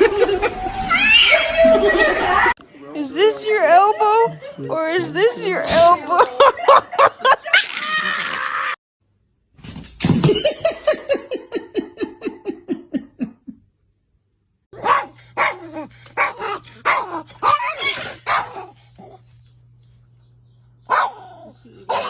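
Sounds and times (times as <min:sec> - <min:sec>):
steady low hum: 0:11.0 - 0:22.0
dog barking and yelping: 0:14.8 - 0:19.3, 0:20.9 - 0:22.0.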